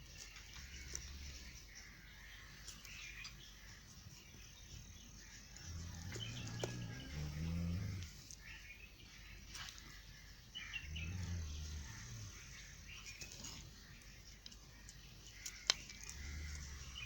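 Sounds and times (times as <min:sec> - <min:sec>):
small birds chirping: 0:00.0 - 0:17.0
low rumble: 0:05.6 - 0:08.2, 0:10.6 - 0:13.2.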